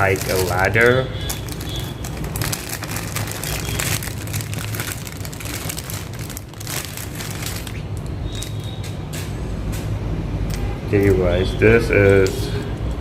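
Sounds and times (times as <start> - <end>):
packaging crinkling and rustling: 0.0 - 9.0.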